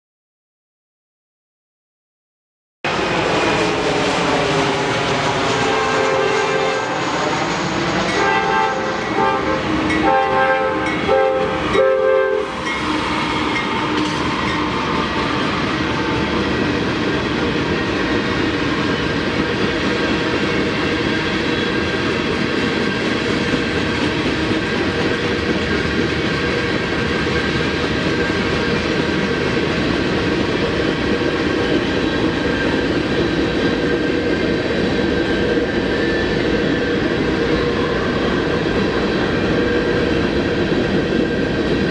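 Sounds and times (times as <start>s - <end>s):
train air horn blasts: 5.5s - 7.2s, 8.0s - 16.5s
freight cars rumbling and clattering: 12.4s - 41.9s.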